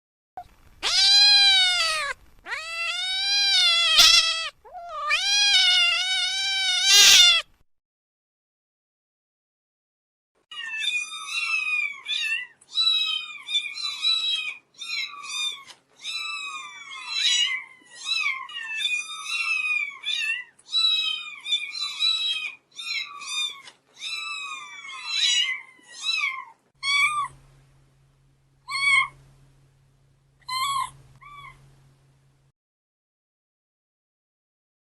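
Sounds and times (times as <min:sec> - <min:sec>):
cats meowing: 0:00.5 - 0:07.5, 0:10.5 - 0:27.3
low steady hum: 0:26.8 - 0:32.5.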